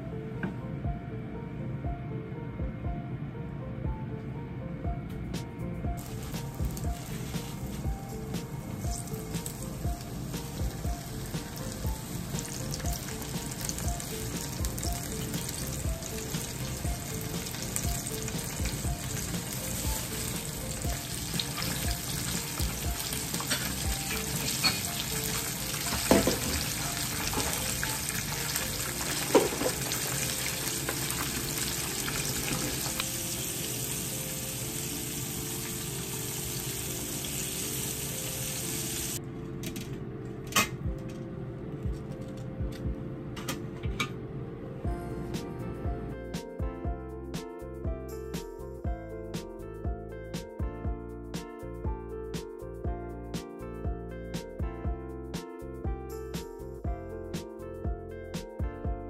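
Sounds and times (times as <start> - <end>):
chicken deep-frying in oil: 6.0 - 39.2.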